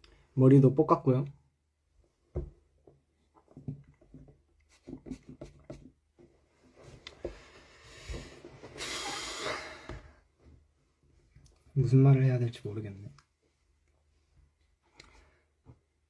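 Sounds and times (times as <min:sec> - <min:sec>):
breathy hiss: 0:07.4 - 0:10.1.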